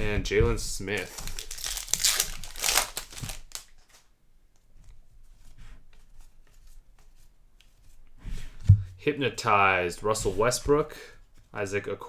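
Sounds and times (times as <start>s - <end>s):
cards clicking and rustling: 0.9s - 4.1s
dull thump: 8.5s - 9.0s.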